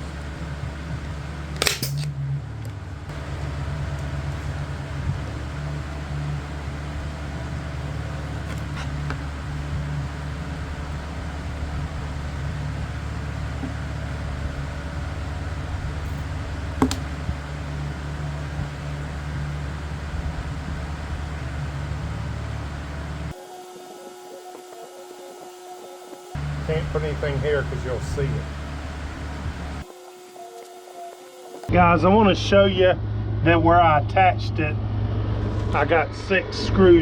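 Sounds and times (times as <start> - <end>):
motor humming: 0.0 - 2.1, 2.7 - 23.7, 26.4 - 31.7
staple gun snap: 1.6 - 2.1.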